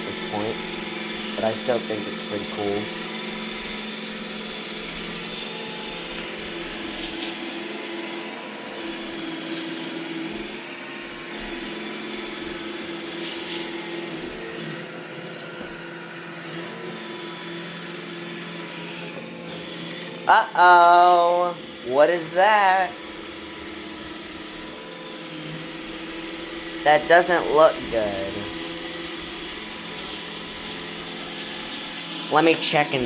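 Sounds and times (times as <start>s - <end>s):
robot vacuum motor and brush hum: 0.0s - 33.0s.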